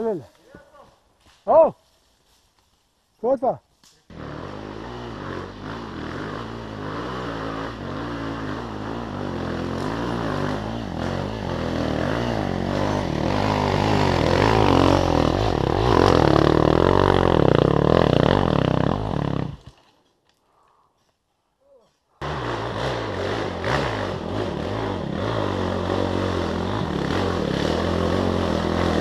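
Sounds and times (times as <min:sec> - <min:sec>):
motorcycle engine revving: 0:04.1 - 0:19.7, 0:22.2 - 0:29.0.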